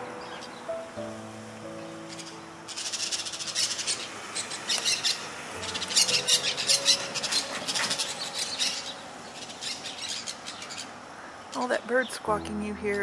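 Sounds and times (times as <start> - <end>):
parakeets squawking: 2.0 - 11.8.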